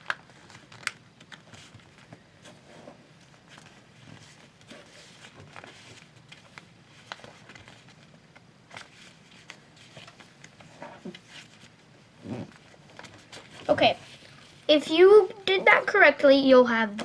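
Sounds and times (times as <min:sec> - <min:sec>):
paper being folded and creased: 0:00.0 - 0:14.7.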